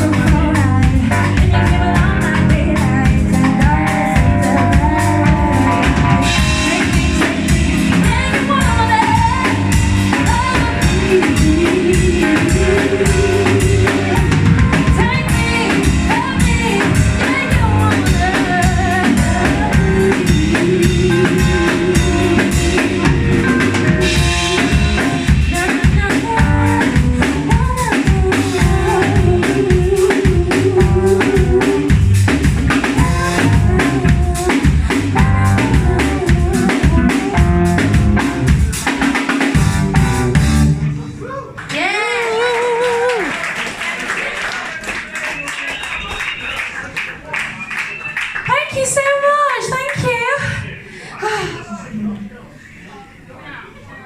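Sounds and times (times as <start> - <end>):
person singing: 0.0 - 32.2, 33.0 - 37.9
drum kit beat: 0.0 - 41.0
live band playing: 0.0 - 50.9.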